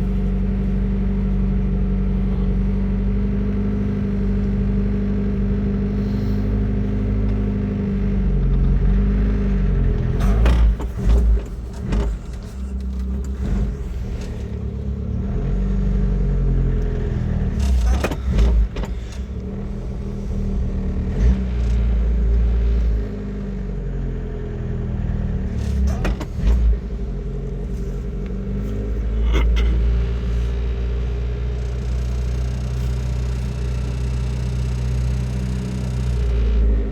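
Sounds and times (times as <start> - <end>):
car engine idling: 0.0 - 36.9
engine knocks: 6.5 - 15.8, 16.4 - 22.6, 25.4 - 36.9.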